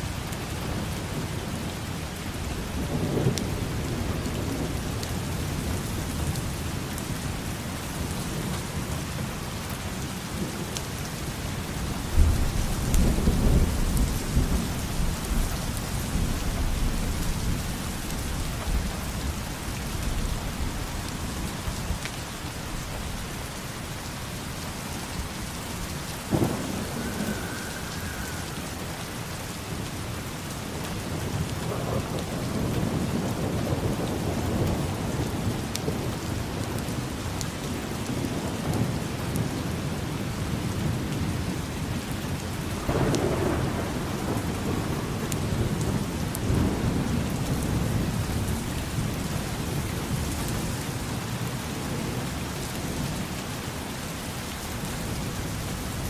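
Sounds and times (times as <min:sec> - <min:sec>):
rain on hard surfaces: 0:00.0 - 0:56.0
thunder rumble: 0:12.0 - 0:21.4, 0:26.2 - 0:37.5, 0:38.1 - 0:52.3.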